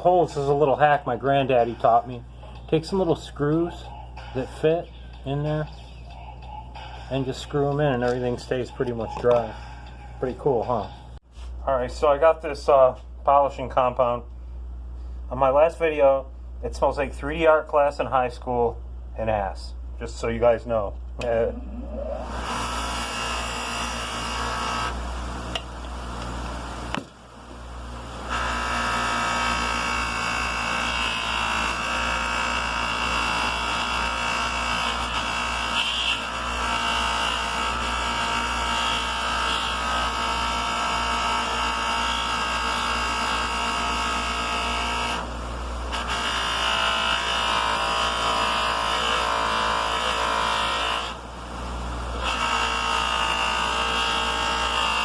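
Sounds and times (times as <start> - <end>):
electric buffer motor whine: 21.5 - 27.0, 27.6 - 55.0.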